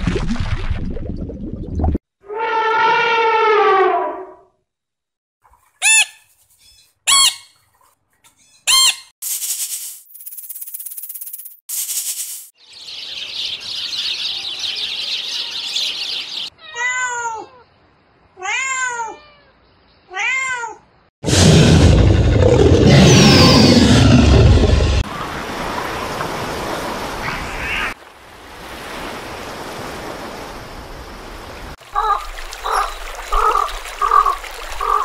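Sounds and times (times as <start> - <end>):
loud deep roar: 21.2 - 25.0
animal calls rising and falling: 22.4 - 25.0.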